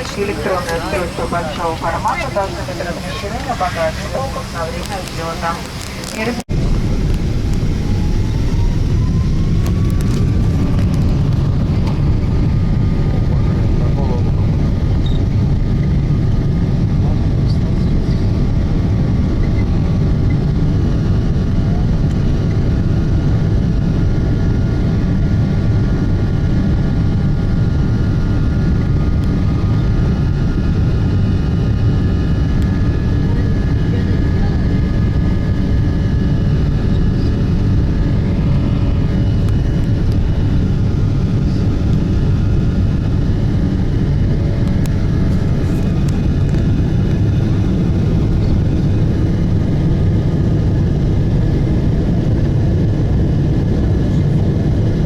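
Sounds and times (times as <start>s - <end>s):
faint high whining tones: 0.0s - 6.5s
jet engine cabin rumble: 0.0s - 55.0s.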